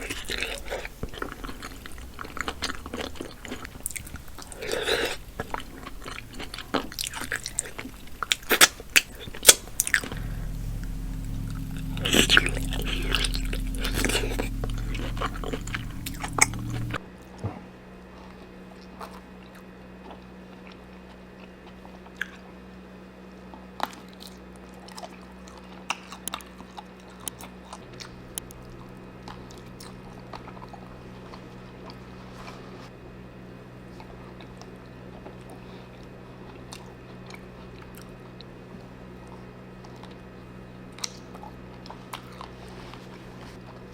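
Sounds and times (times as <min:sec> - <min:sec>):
low hum: 0:10.1 - 0:17.1.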